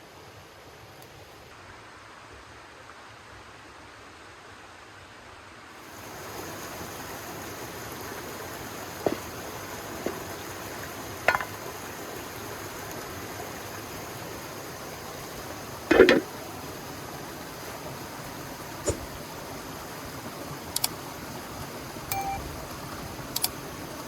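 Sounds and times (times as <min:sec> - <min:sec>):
river water running: 0:05.7 - 0:24.0
short knocks: 0:11.2 - 0:11.6, 0:15.9 - 0:16.3.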